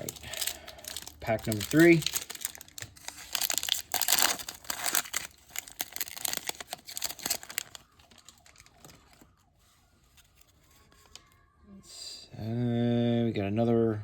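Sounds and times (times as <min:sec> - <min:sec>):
wrapper tearing and crinkling: 0:00.0 - 0:09.4.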